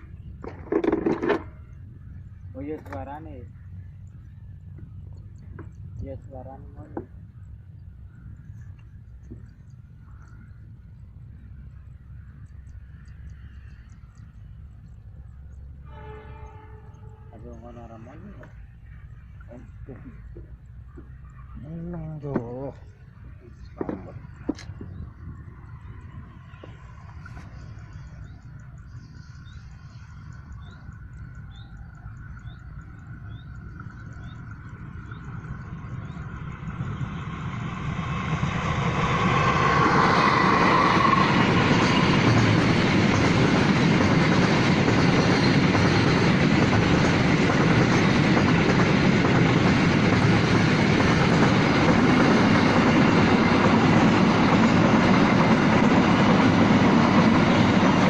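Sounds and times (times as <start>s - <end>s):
freight train wheels on rails: 19.5s - 58.0s.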